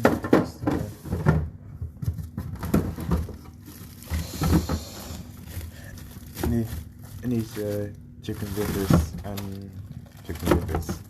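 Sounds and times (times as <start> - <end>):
frozen food packets knocking: 0.0 - 11.0
plastic bag crinkling: 2.6 - 11.0.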